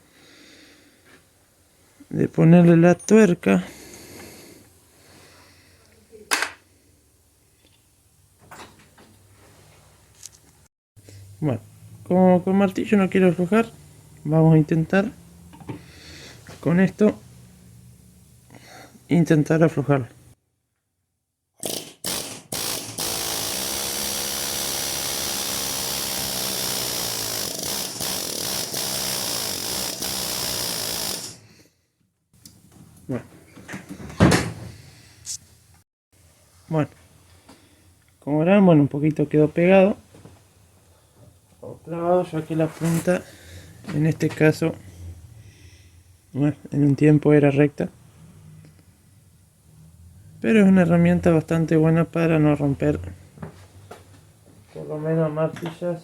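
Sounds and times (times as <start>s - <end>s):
pneumatic air hammer: 21.6s - 31.5s.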